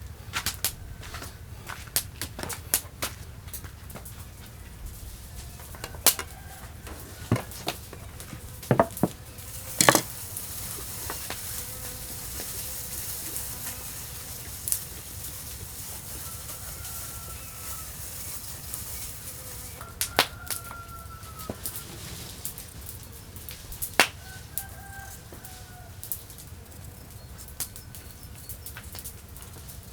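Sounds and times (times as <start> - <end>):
sharp knocks: 7.3 - 9.2, 9.8 - 10.1.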